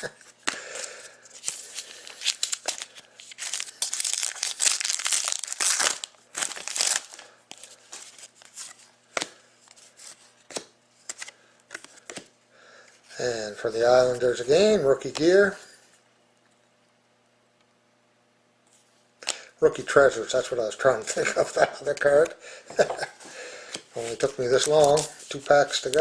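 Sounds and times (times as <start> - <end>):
wrapper tearing and crinkling: 1.4 - 8.7.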